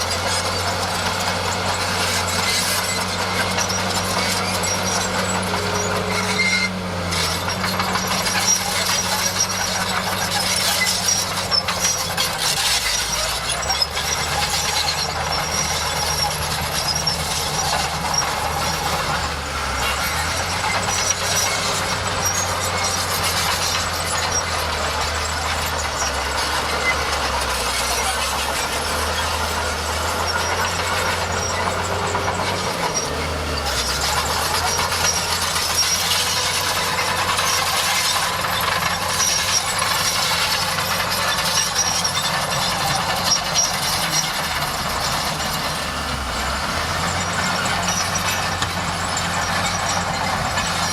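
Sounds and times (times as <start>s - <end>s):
bulldozer diesel engine: 0.0s - 50.9s
crawler tracks squeaking: 0.0s - 50.9s.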